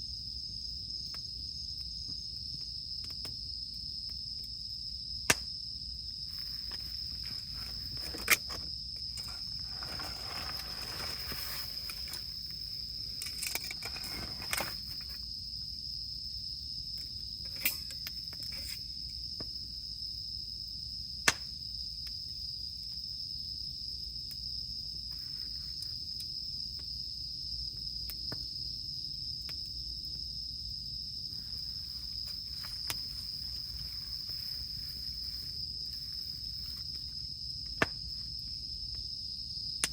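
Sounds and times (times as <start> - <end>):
campfire crackling and popping: 0.9 - 15.3, 21.2 - 22.2, 24.1 - 28.8, 31.3 - 39.1
high-pitched insect drone: 30.5 - 37.5.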